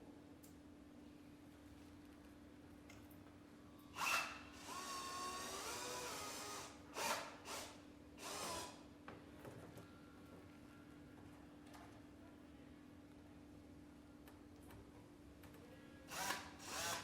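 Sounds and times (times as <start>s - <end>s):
power drill driving screws into wood: 4.0s - 8.8s, 16.1s - 17.0s.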